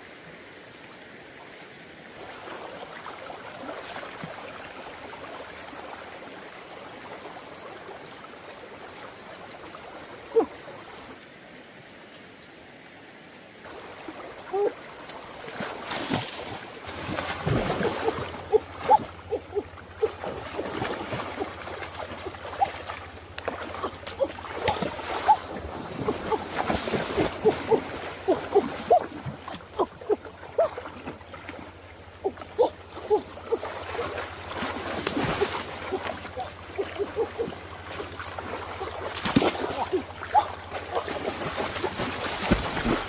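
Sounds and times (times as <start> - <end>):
water splashing and trickling: 0.0 - 43.0
water plops and gurgles: 2.2 - 7.3, 13.6 - 43.0.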